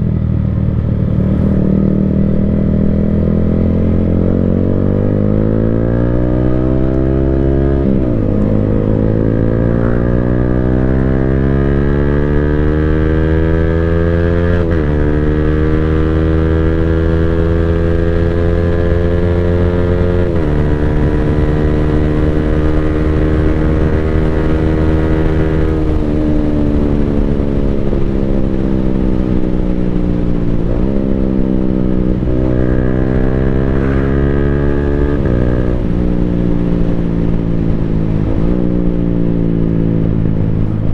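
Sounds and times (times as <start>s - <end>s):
motorcycle engine accelerating and shifting: 0.0s - 40.9s.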